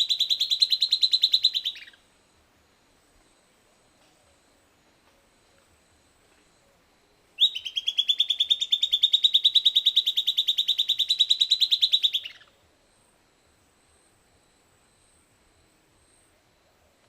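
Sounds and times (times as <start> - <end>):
bird song of rapid sharp notes: 0.0 - 2.0, 7.4 - 12.6.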